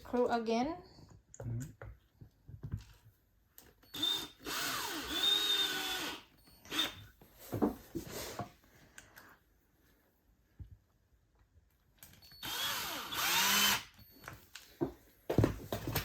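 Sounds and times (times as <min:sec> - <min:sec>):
drill driving screws: 0:03.8 - 0:07.0, 0:12.3 - 0:14.0.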